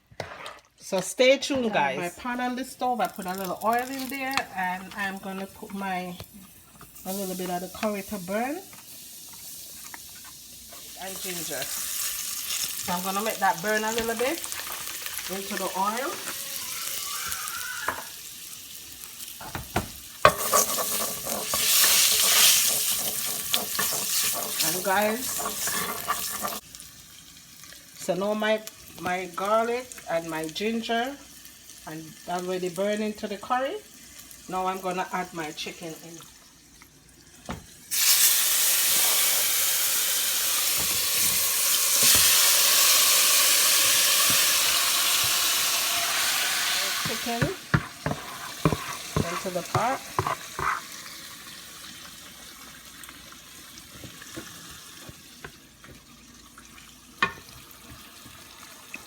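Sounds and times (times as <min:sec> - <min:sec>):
spices sizzling in hot oil: 0:02.2 - 0:59.0
utensil clicking on pan: 0:19.4 - 0:26.6.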